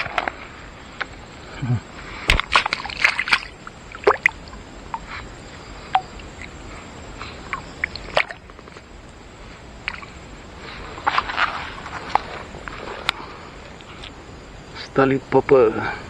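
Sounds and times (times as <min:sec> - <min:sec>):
water dripping and splashing: 0:02.3 - 0:09.2, 0:09.8 - 0:10.3.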